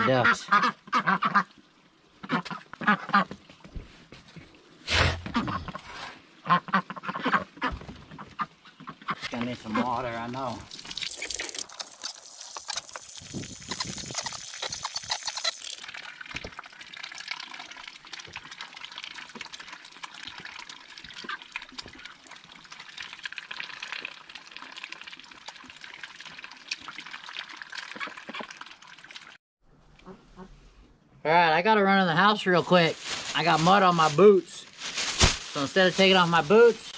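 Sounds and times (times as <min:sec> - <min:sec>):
water pouring from hose: 0:09.3 - 0:29.4.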